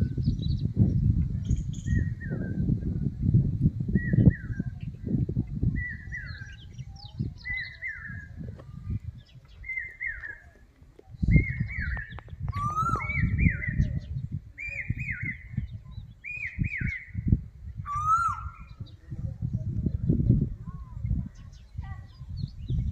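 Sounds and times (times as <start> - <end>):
lower falling bird call: 9.4 - 10.6.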